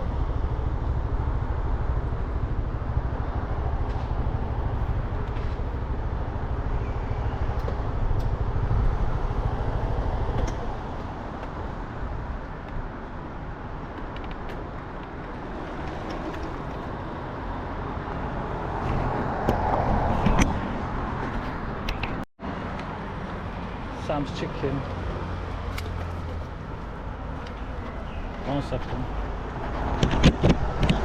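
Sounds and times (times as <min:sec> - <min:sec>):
road noise: 0:00.0 - 0:31.0
wind noise: 0:29.1 - 0:31.0.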